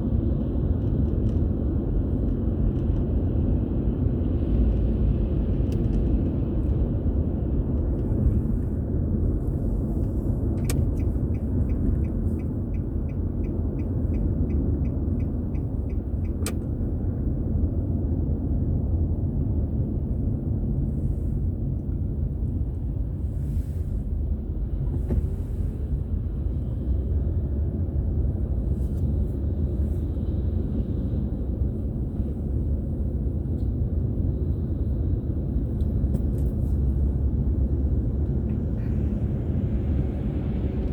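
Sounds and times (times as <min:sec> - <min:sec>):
car road and engine rumble: 0:00.0 - 0:40.9
turn signal ticking: 0:10.0 - 0:16.8.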